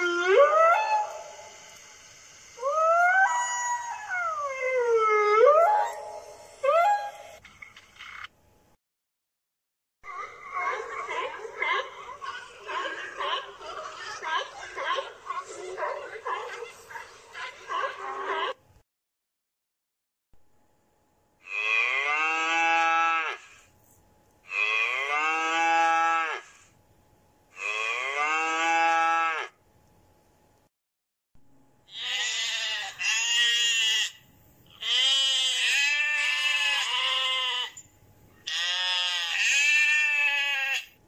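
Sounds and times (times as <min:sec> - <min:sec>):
sheep bleating: 0:31.9 - 0:37.8, 0:38.4 - 0:40.9.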